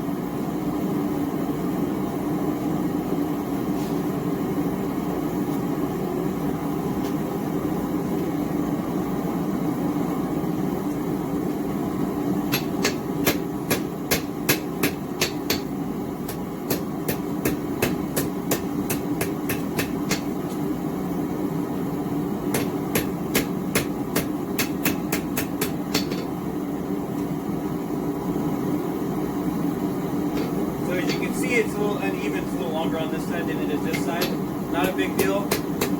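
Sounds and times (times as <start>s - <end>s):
gas forge burner rushing: 0.0s - 35.9s
hammer striking steel on anvil: 12.5s - 15.7s, 16.3s - 20.4s, 22.5s - 26.3s, 30.3s - 31.4s, 33.8s - 35.9s.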